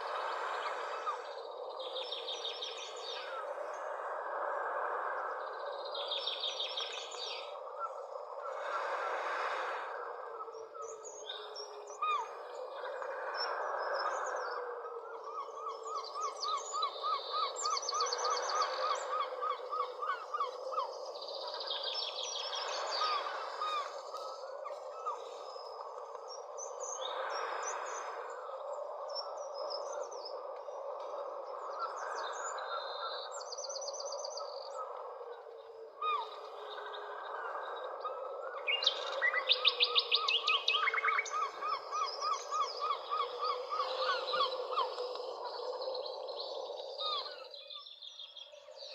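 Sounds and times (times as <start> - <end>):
birds chirping and trilling: 15.2 - 30.8, 31.5 - 48.9.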